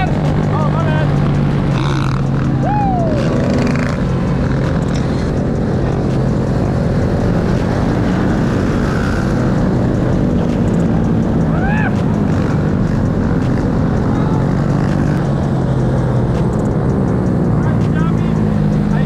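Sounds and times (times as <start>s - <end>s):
rising and falling whoop: 2.5s - 4.0s, 11.4s - 12.1s.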